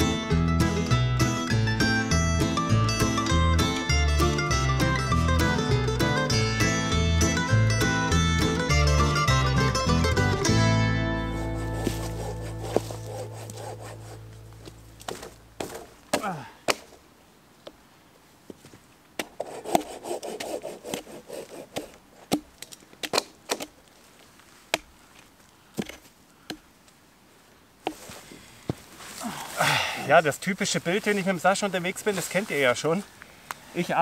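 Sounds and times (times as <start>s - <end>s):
background music: 0.0s - 14.9s
wood rubbing: 11.2s - 16.9s, 19.2s - 26.6s
wood knocking and snapping: 14.6s - 17.0s, 21.7s - 23.8s, 25.8s - 26.7s.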